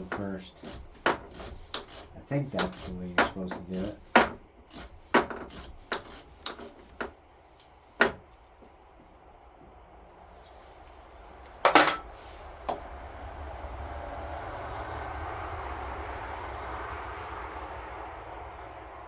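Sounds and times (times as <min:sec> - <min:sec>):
metal clatter: 0:00.0 - 0:08.3, 0:11.6 - 0:12.3.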